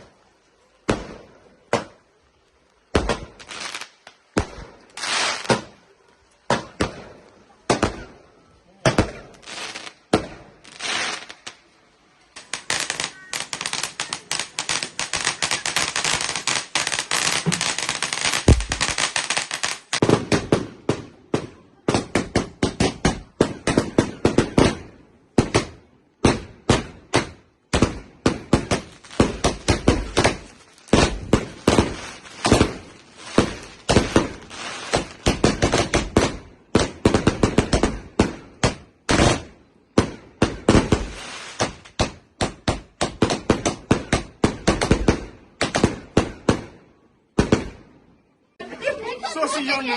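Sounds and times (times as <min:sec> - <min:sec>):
fireworks crackling: 0:00.0 - 0:49.9
fireworks bangs: 0:00.8 - 0:02.1, 0:02.9 - 0:08.2, 0:08.8 - 0:11.6, 0:12.3 - 0:48.1.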